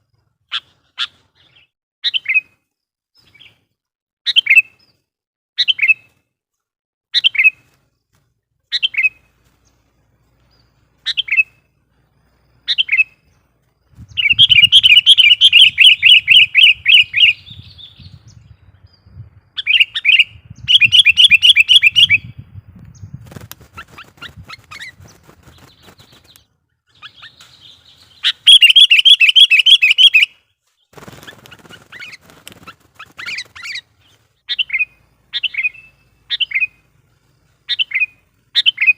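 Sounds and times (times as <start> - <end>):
bird calling: 10.4 - 11.7, 12.5 - 13.3, 14.1 - 18.0, 19.6 - 22.3, 23.7 - 38.9
bird chattering: 14.2 - 17.6, 23.6 - 30.3, 31.0 - 36.9.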